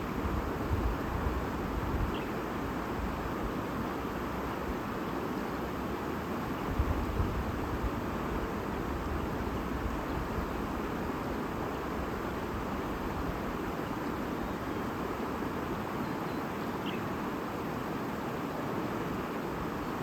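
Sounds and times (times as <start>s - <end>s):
stream babbling: 10.5s - 20.0s.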